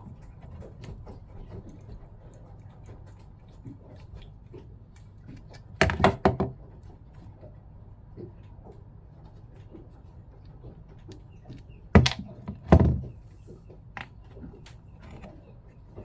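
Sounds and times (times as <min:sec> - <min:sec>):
loud knocks: 0:12.0 - 0:13.2.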